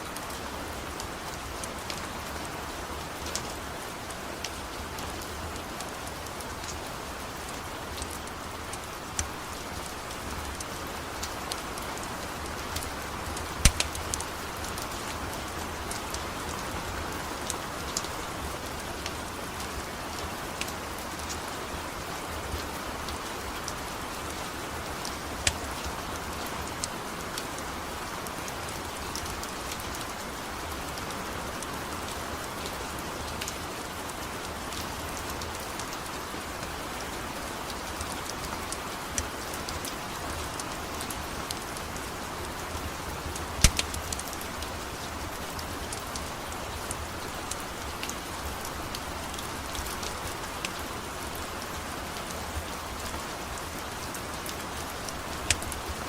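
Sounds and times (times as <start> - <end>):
rain falling: 0.0 - 56.0
wood fire crackling and popping: 12.7 - 14.8, 43.6 - 44.4, 55.1 - 55.8.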